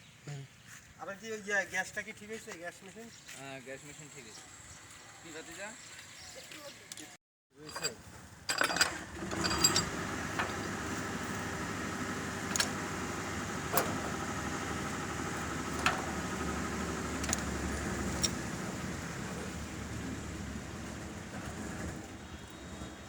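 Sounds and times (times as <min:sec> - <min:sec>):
machine humming: 0:09.1 - 0:23.0.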